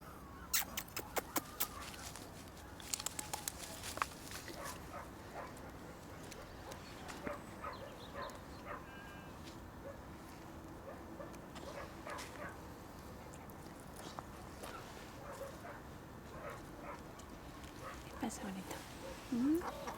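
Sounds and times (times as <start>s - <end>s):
puppies making small sounds: 0.4s - 2.2s, 18.7s - 19.9s
sharp clicks and snaps: 0.5s - 1.8s, 2.8s - 4.1s.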